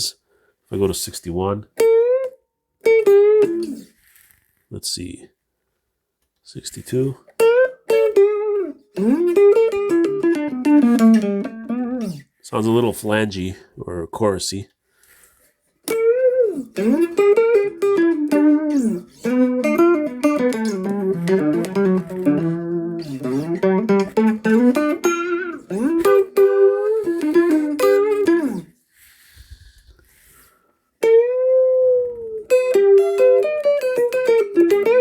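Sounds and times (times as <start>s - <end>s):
electric guitar with chorus effect: 1.8s - 3.9s, 7.2s - 12.3s, 15.9s - 28.7s, 31.0s - 35.0s.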